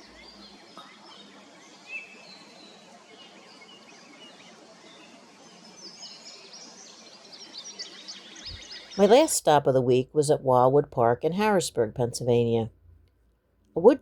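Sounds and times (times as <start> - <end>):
birds singing and chirping: 0.0 - 9.3.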